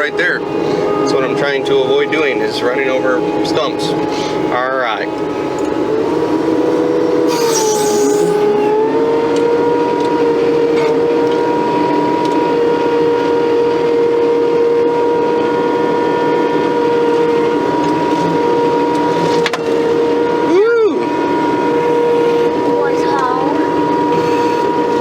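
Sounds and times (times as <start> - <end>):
skid steer engine whining: 0.0 - 25.0
short hiss: 7.3 - 8.5.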